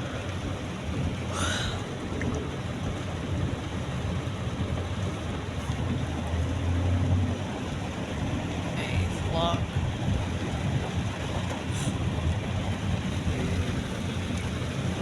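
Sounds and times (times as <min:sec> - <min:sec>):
car driving rumble: 0:00.0 - 0:15.0
rain hissing on car: 0:00.0 - 0:15.0.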